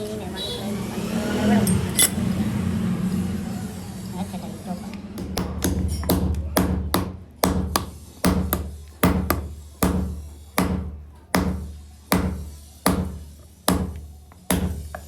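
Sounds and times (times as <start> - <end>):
hammer striking metal: 1.7 - 2.2, 5.2 - 15.0.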